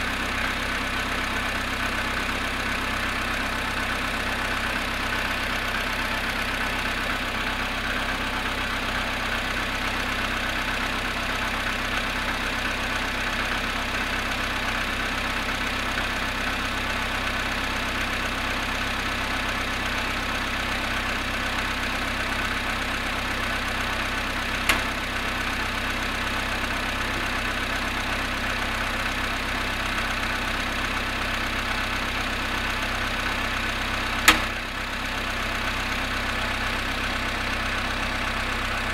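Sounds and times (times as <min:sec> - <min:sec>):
car engine idling with a knock: 0:21.2 - 0:30.7, 0:32.6 - 0:35.9.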